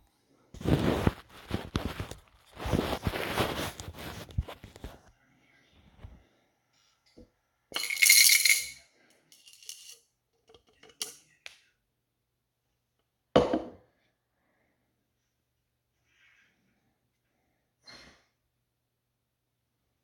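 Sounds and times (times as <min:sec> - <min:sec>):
small metal screws rattling: 0:07.8 - 0:10.0.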